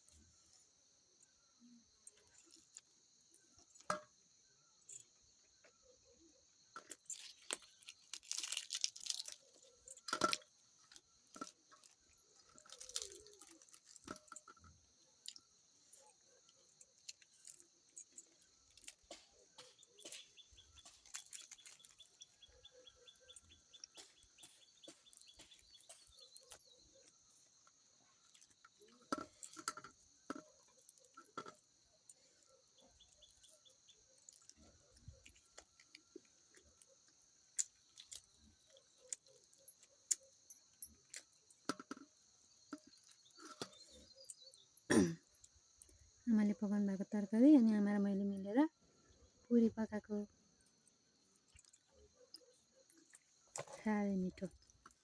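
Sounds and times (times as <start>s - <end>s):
crunches and small clicks: 6.8s - 44.5s
person chewing food: 16.9s - 29.8s, 32.2s - 42.1s.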